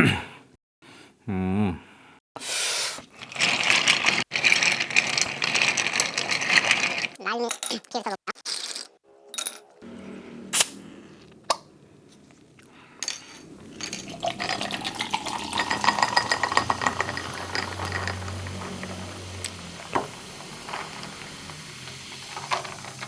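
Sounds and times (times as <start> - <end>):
bottle clinking against glass: 9.4 - 9.6, 13.0 - 19.0
soft drink pouring and fizzing: 13.3 - 23.0.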